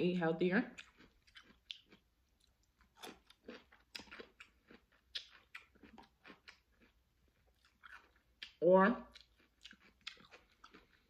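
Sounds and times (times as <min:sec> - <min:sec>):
chewing crunchy cucumber: 0:00.6 - 0:11.0.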